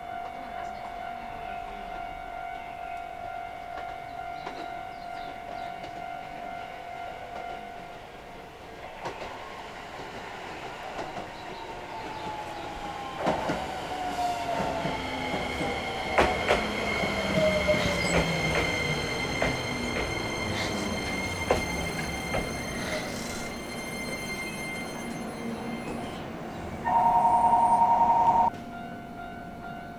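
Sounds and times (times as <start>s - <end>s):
wheels clicking over rail joints: 10.9s - 23.4s.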